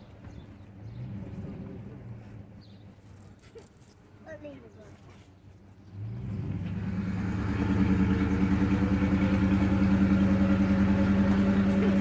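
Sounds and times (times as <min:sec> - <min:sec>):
car engine running: 0:06.2 - 0:12.0.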